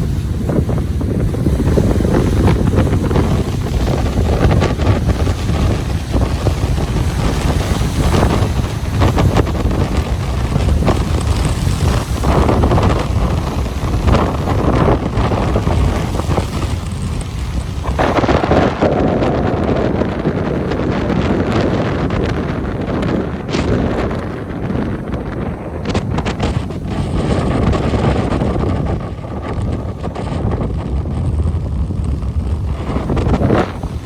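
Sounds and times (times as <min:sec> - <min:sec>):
ocean waves washing onto beach: 0:00.0 - 0:34.0
wind buffeting microphone: 0:00.0 - 0:34.0.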